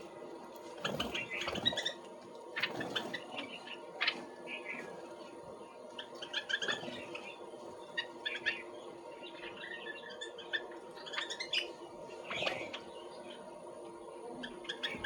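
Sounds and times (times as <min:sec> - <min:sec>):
faint steady hum: 0:00.0 - 0:15.0
small birds chirping: 0:00.0 - 0:15.0.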